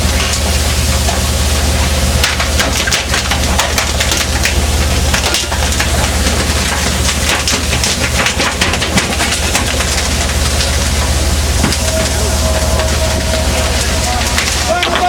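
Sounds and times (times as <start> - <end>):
boat engine droning: 0.0 - 15.0
rushing noise: 10.8 - 15.0.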